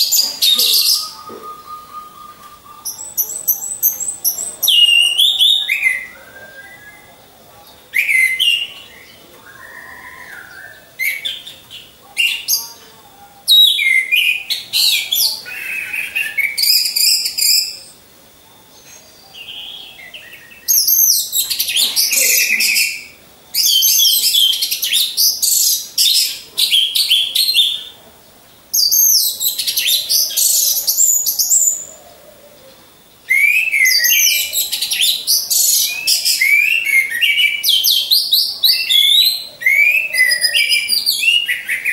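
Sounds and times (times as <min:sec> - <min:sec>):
thrushes singing high-pitched song: 0:00.0 - 0:18.4, 0:33.0 - 0:41.9
quiet bird calls: 0:00.0 - 0:41.9.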